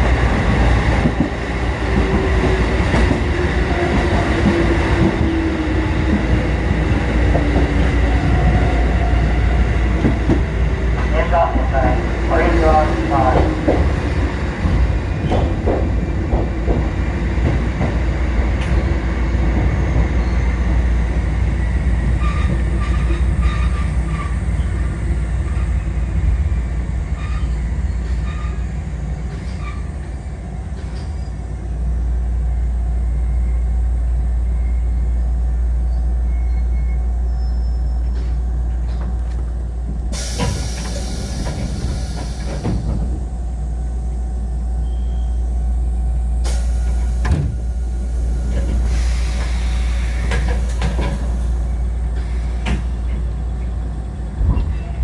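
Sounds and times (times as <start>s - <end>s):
electric train hum: 0.0s - 55.0s
air hiss: 40.1s - 42.9s, 46.5s - 51.7s.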